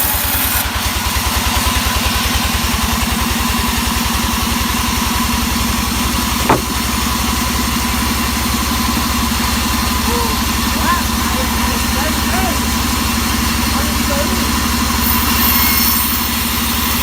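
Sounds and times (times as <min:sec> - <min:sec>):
engine idling: 0:00.9 - 0:15.2
sharp knock: 0:06.4 - 0:06.9.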